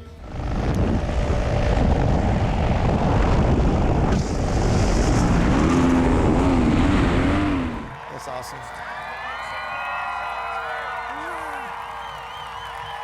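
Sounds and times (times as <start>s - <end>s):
paramotor engine and propeller: 0.0s - 8.0s
wind: 0.0s - 13.0s.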